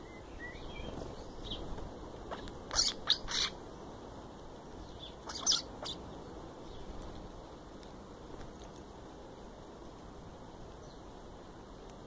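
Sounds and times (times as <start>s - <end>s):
birds chirping: 0.0s - 4.0s, 4.6s - 7.1s
loud bird calls: 2.3s - 3.6s, 4.8s - 6.9s.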